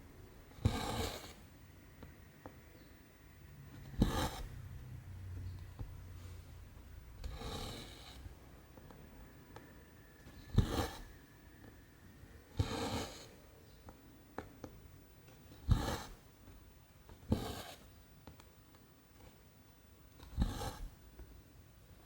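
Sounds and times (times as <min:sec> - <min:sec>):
thread rasping through cloth: 0:00.5 - 0:01.4, 0:03.7 - 0:04.6, 0:07.2 - 0:08.4, 0:10.3 - 0:11.1, 0:12.5 - 0:13.4, 0:15.5 - 0:16.2, 0:17.2 - 0:17.9, 0:20.2 - 0:21.0.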